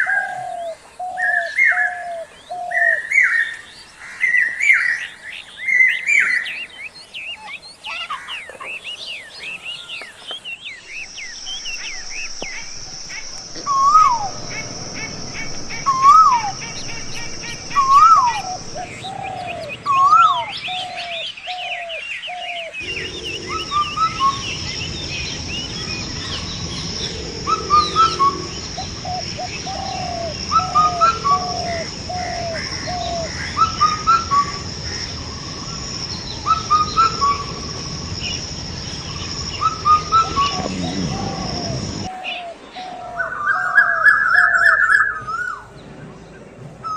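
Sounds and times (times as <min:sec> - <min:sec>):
birds chirping and twittering: 0:00.0 - 0:46.9
steady high-pitched whine: 0:09.4 - 0:46.9
bird repeating rising and falling call: 0:10.6 - 0:45.6.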